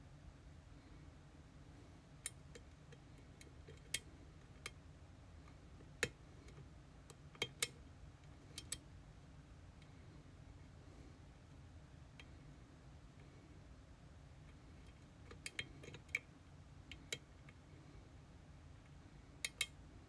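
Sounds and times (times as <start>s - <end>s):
lock picking tool clicks: 19.4s - 19.7s.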